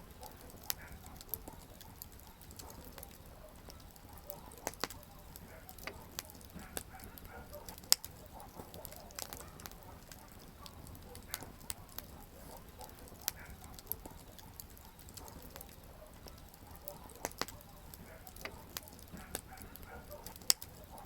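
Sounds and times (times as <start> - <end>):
low steady hiss: 0.0 - 6.6
campfire crackling: 0.0 - 21.0.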